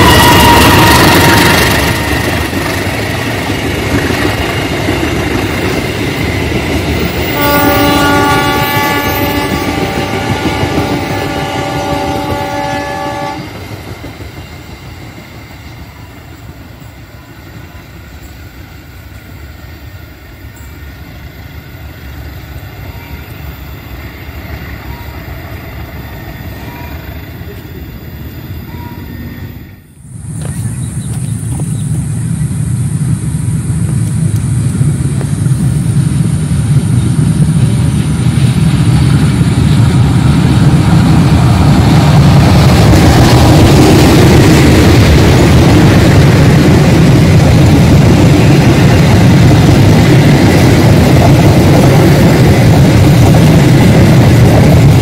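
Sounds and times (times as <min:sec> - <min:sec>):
train horn blast: 0:00.0 - 0:02.4, 0:07.2 - 0:13.6, 0:26.2 - 0:27.2
train engine and wheel noise: 0:00.0 - 0:55.0.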